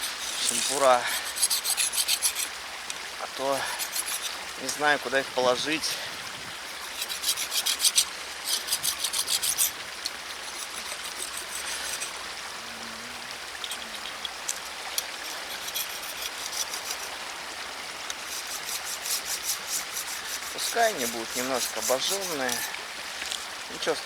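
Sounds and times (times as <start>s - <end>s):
metal skewers being scraped: 0.0s - 2.5s, 3.6s - 4.8s, 6.8s - 9.7s, 10.5s - 12.2s, 13.6s - 17.1s, 18.3s - 22.8s
steady hiss: 0.0s - 24.0s.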